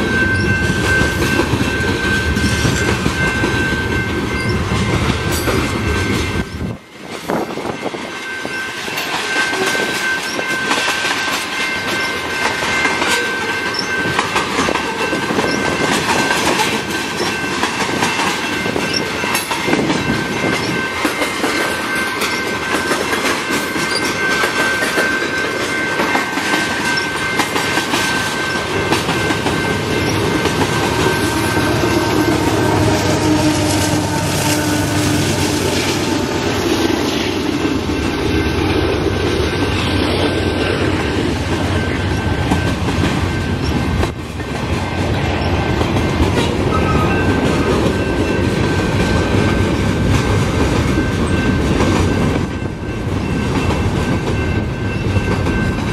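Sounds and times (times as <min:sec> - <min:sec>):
train wheels clattering: 0:00.0 - 0:55.9
high-pitched tone: 0:18.5 - 0:43.7.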